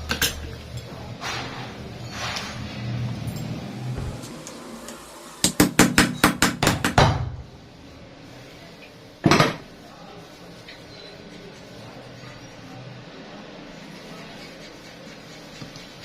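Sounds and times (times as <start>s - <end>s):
hammer striking metal: 5.4s - 7.3s.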